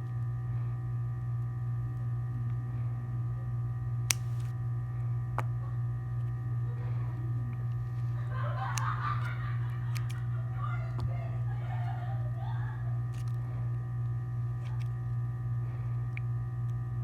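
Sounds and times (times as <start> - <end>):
steady low hum: 0.0 - 17.0
sharp clicks: 4.1 - 4.5, 8.7 - 10.2.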